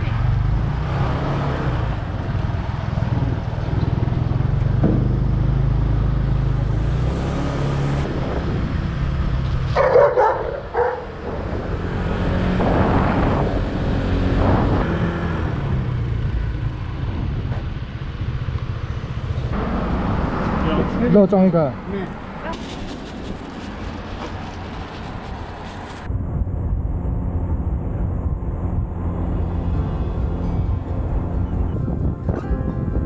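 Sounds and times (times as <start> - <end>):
wind and road noise: 0.0 - 33.0
motorcycle engine running: 2.0 - 6.8.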